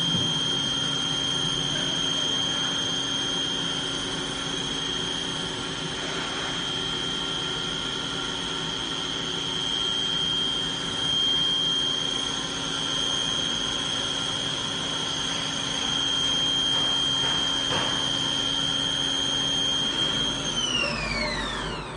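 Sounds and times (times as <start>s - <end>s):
machine spindle whining: 0.0s - 21.9s.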